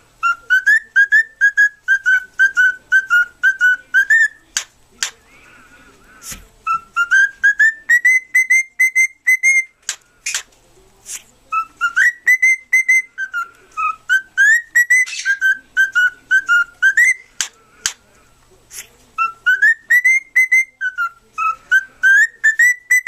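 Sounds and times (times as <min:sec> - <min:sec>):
cockatiel whistling a tune: 0:00.2 - 0:04.6, 0:06.6 - 0:10.4, 0:11.5 - 0:17.5, 0:19.2 - 0:23.0.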